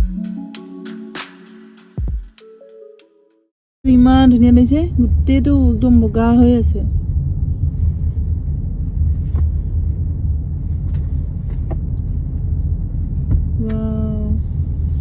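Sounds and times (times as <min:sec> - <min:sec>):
car engine and tyre rumble: 0:03.9 - 0:15.0.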